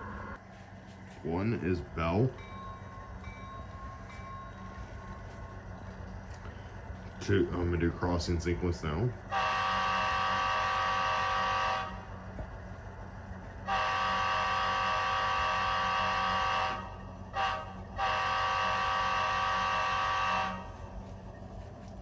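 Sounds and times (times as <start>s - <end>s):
model train horn blasts: 9.3s - 12.2s, 13.6s - 21.0s.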